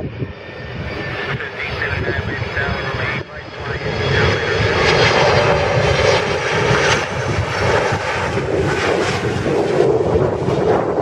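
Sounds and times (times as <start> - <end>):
airliner engines roaring: 0.0 - 11.0.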